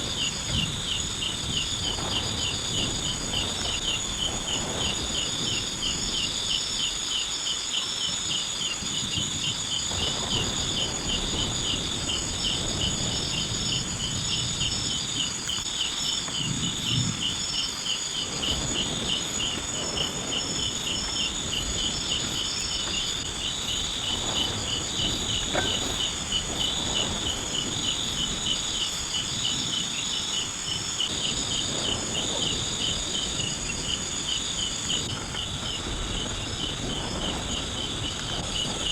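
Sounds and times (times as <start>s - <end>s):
fast pulsing insect call: 0.0s - 38.9s
high insect trill: 0.0s - 38.9s
insect pulsing chirp: 0.0s - 38.9s
low rustling: 15.6s - 29.2s.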